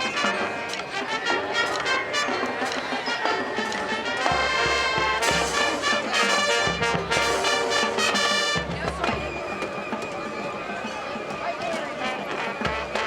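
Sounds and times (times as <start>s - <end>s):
marching band playing: 0.0s - 13.0s.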